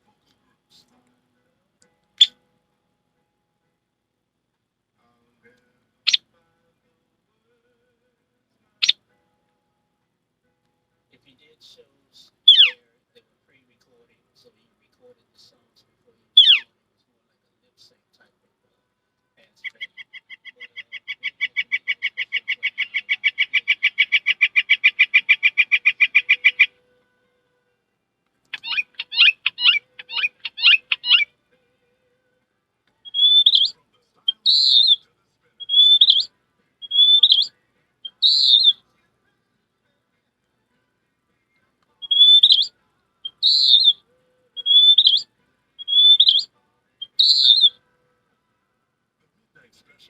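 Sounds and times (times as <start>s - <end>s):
high imitated bird chirps: 12.4s - 12.8s, 16.4s - 16.7s, 19.6s - 26.8s, 28.5s - 31.3s, 33.0s - 35.0s, 35.6s - 38.8s, 42.0s - 44.0s, 44.6s - 47.8s
person imitating bird trill: 12.5s - 12.8s, 16.4s - 16.6s, 19.6s - 26.7s, 28.6s - 31.3s, 33.0s - 33.7s, 34.3s - 35.0s, 35.6s - 37.5s, 38.1s - 38.7s, 42.0s - 42.7s, 43.3s - 44.0s, 44.6s - 45.2s, 45.8s - 47.8s.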